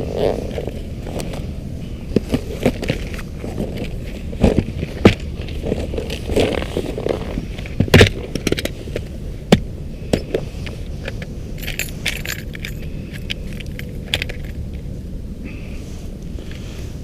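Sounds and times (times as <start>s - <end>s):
steady low rumble: 0.0s - 17.0s
light metallic clicks and clinks: 10.1s - 14.9s.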